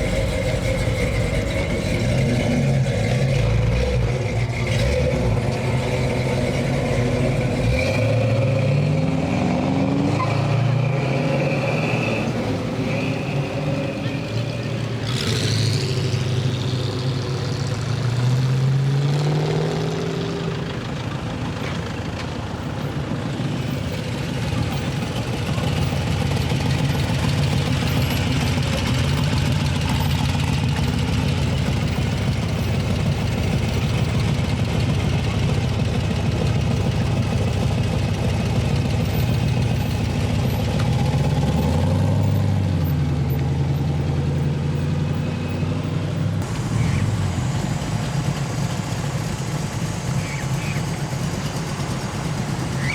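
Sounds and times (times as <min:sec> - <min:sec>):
car engines driving by: 0:00.0 - 0:52.9.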